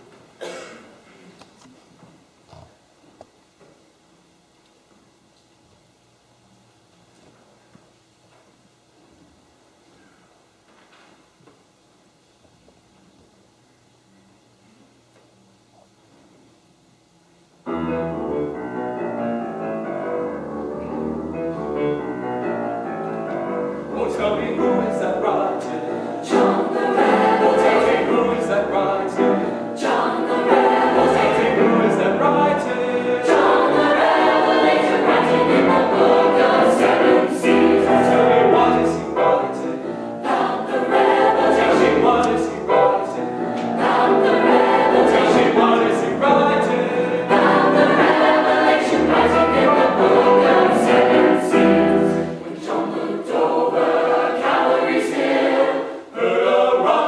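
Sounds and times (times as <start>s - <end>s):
choir singing sacred music: 22.8s - 57.0s.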